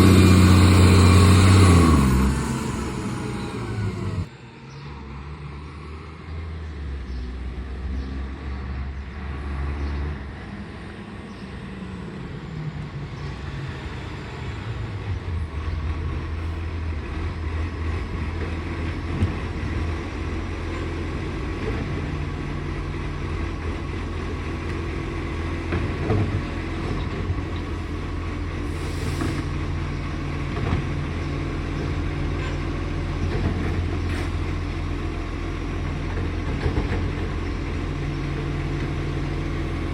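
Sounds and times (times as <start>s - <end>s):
garbage truck engine running: 0.0s - 4.3s.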